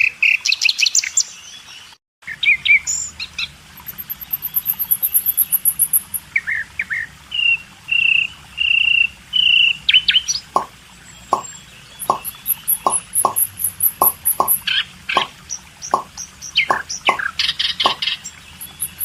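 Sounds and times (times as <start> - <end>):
small birds chirping: 9.6 - 19.0
hollow plopping knocks: 10.6 - 14.6, 15.2 - 18.2.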